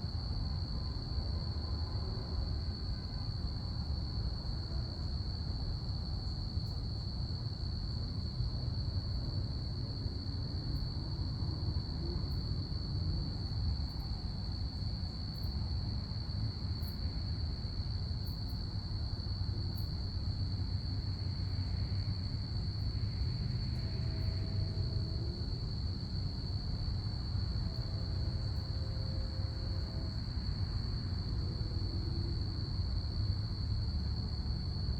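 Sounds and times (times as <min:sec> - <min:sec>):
crickets trilling: 0:05.9 - 0:34.9.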